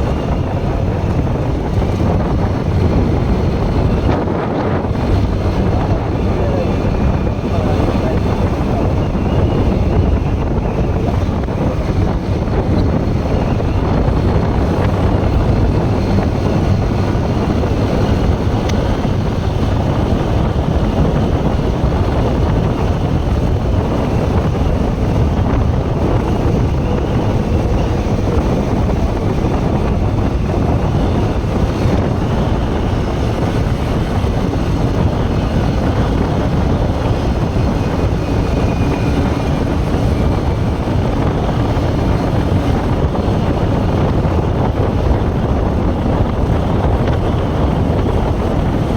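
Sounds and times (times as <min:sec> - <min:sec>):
motorcycle running: 0:00.0 - 0:48.9
wind buffeting microphone: 0:00.0 - 0:48.9.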